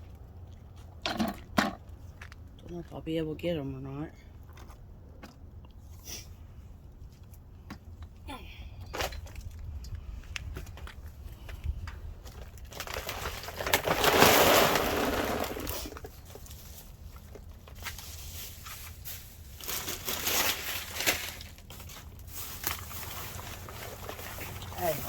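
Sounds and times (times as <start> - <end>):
trash crunching and rustling: 8.9 - 25.0.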